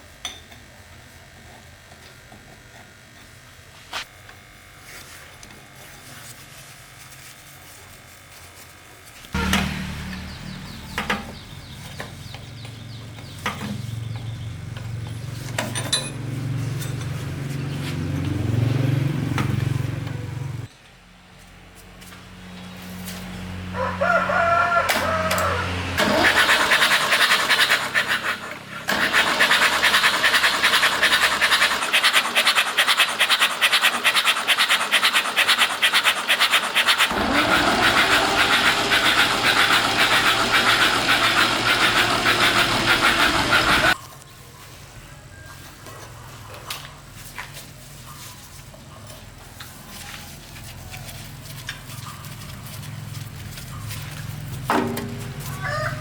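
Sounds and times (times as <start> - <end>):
engine rattling: 9.4 - 20.7, 24.9 - 44.0, 51.5 - 56.0.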